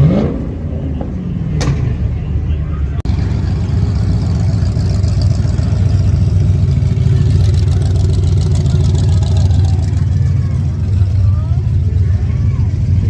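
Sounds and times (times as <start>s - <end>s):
car engine running: 0.1s - 13.0s.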